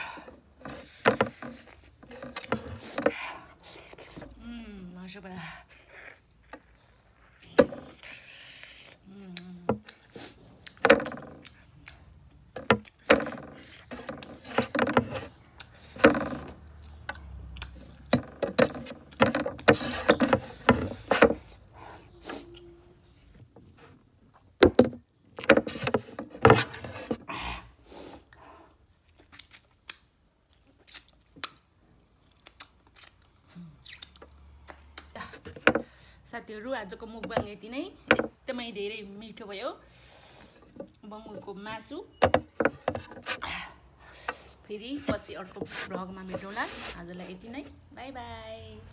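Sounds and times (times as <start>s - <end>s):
chewing and lip smacking: 29.0s - 35.1s
fingers being licked: 32.4s - 35.1s.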